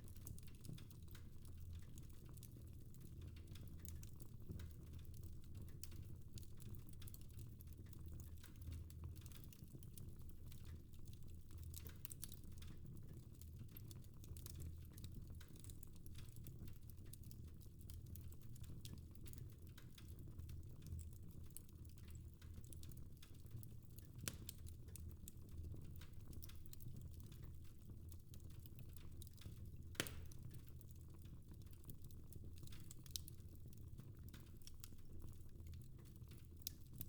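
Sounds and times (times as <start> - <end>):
fireplace fire crackling: 0.0 - 37.0.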